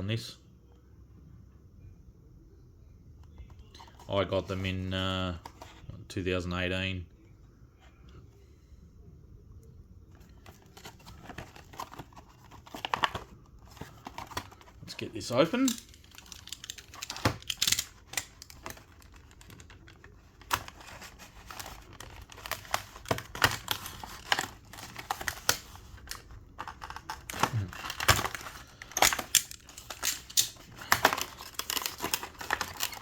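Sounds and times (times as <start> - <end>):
plastic packaging crackling: 10.4 - 33.0.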